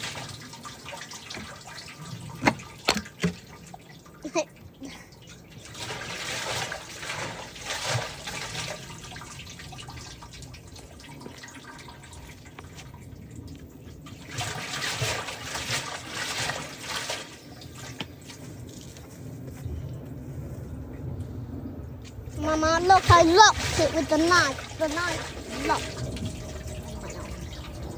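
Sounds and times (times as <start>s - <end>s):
water pouring and splashing: 0.0s - 20.5s, 22.1s - 27.9s.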